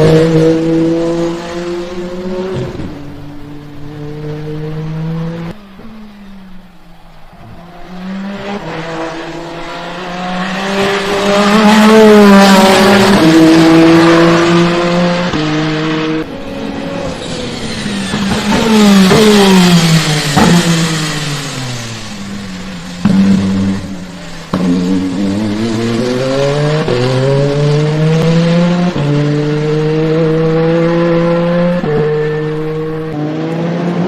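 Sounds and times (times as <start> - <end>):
race car engine at speed: 0.0 - 34.0.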